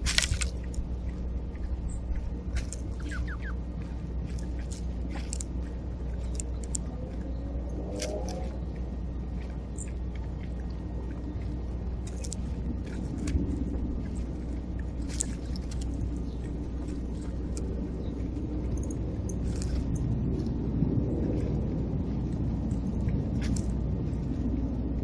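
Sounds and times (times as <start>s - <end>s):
steady low rumble: 0.0s - 25.0s
high bird chirps: 2.9s - 3.6s.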